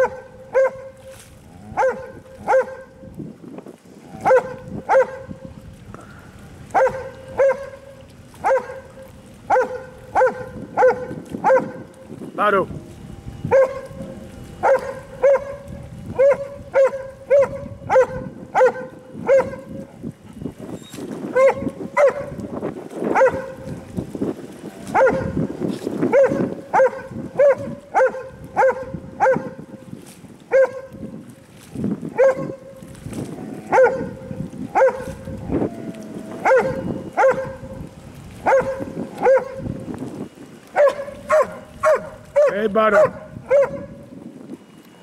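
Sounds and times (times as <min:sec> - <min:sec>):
dog barking: 0:00.0 - 0:01.0, 0:01.8 - 0:02.9, 0:04.2 - 0:05.3, 0:06.8 - 0:07.8, 0:08.4 - 0:08.9, 0:09.5 - 0:11.8, 0:13.5 - 0:13.9, 0:14.6 - 0:19.7, 0:21.4 - 0:22.4, 0:23.1 - 0:23.6, 0:24.9 - 0:25.4, 0:26.1 - 0:29.6, 0:30.5 - 0:31.0, 0:32.2 - 0:32.7, 0:33.7 - 0:34.2, 0:34.8 - 0:35.2, 0:36.4 - 0:37.7, 0:38.4 - 0:39.6, 0:40.8 - 0:44.0.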